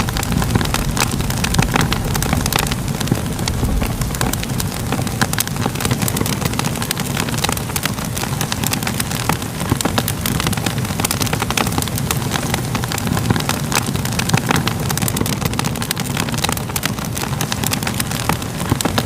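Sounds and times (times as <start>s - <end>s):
fire crackling: 0.0s - 19.0s.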